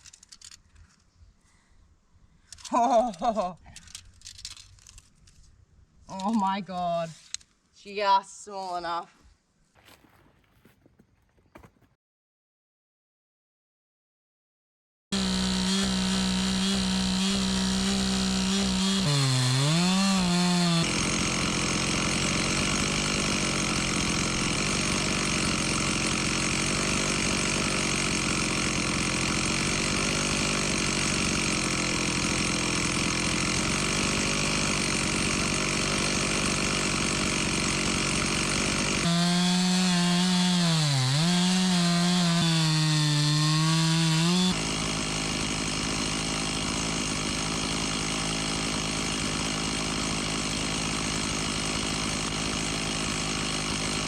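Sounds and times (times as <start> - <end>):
chainsaw cutting log: 6.1 - 7.4, 9.8 - 11.9, 15.1 - 54.0.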